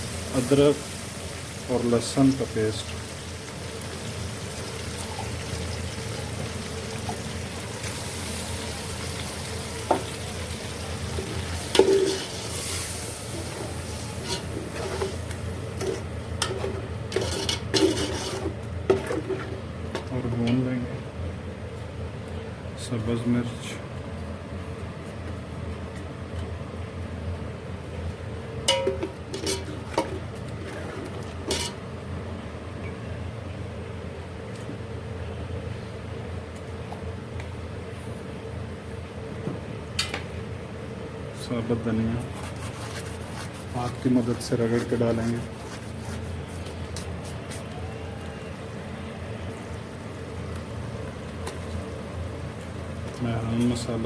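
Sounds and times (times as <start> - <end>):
food sizzling in a pan: 0.0 - 16.4
utensil knocking on pan: 28.7 - 29.2.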